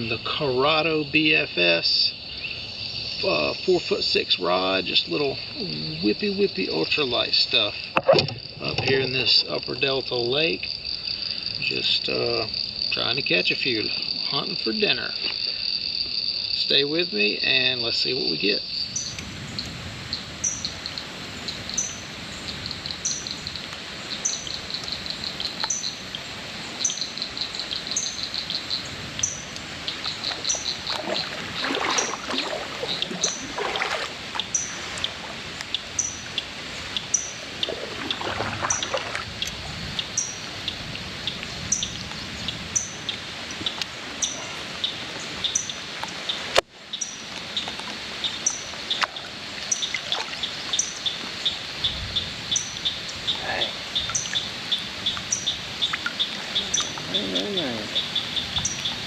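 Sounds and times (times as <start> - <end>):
water splashes: 18.3 - 46.6, 47.2 - 51.8, 52.7 - 59.0
pulsed insect trilling: 24.2 - 36.4.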